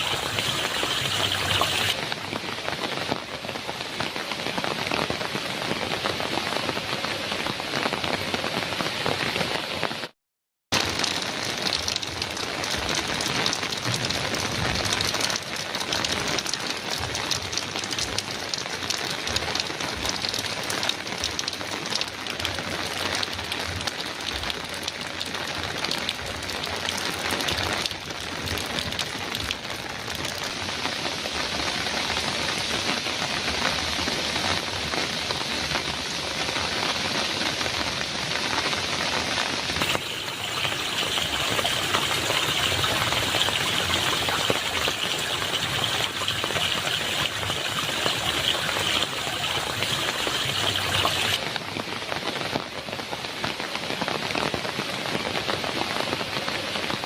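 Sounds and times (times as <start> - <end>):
heavy rain on a metal roof: 0.0 - 57.0.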